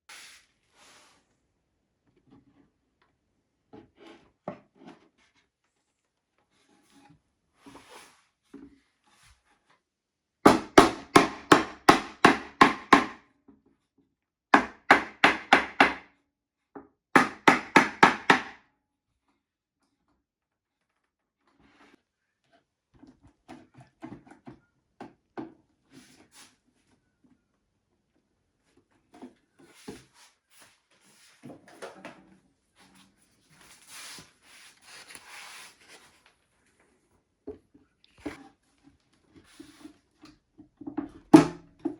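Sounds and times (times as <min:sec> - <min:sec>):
hammer tapping on wood: 0:10.5 - 0:13.2, 0:14.6 - 0:16.0, 0:17.2 - 0:18.6.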